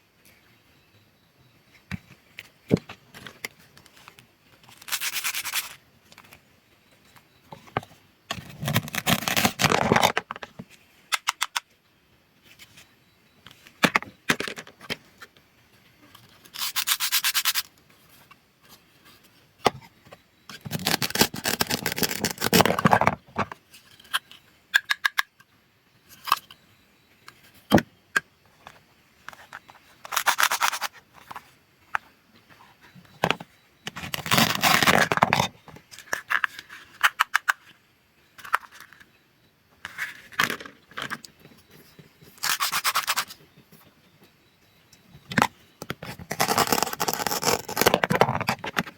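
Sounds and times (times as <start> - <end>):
velcro tearing apart: 46.3 - 47.9.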